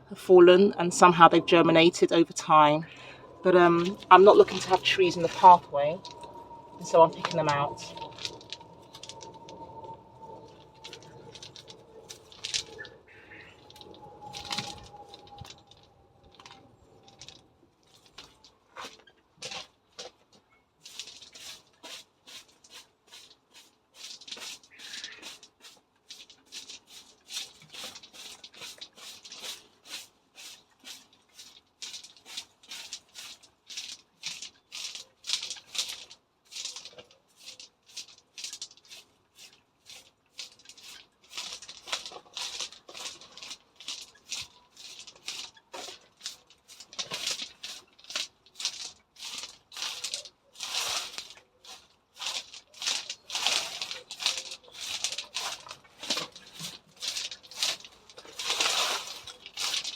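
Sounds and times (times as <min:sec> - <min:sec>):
rustling in dry vegetation: 0:00.0 - 0:59.9.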